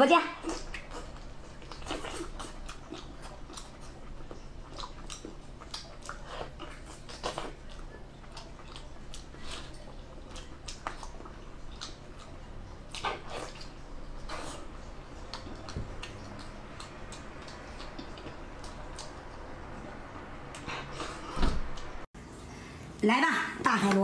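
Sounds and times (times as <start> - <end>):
wet chewing and mouth sounds: 0.3 - 22.1.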